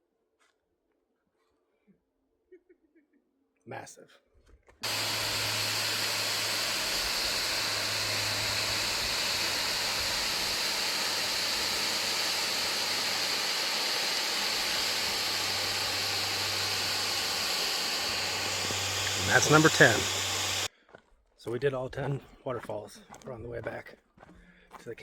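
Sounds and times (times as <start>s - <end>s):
waterfall rushing: 4.8s - 20.7s.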